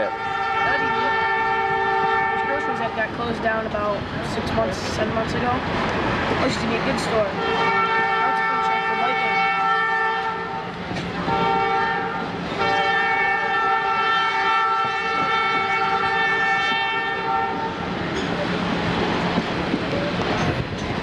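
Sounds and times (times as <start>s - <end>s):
locomotive air horn chord: 0.0s - 3.0s, 7.4s - 17.8s
train rumbling: 0.0s - 21.0s
wheels clattering on rails: 2.3s - 21.0s.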